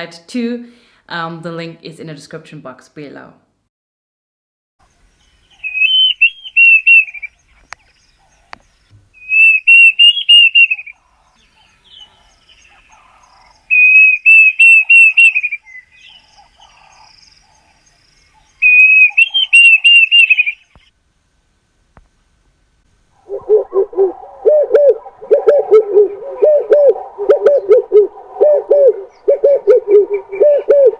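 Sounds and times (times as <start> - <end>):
bird singing whistled notes: 5.5 - 7.7, 9.2 - 16.3, 18.6 - 20.8.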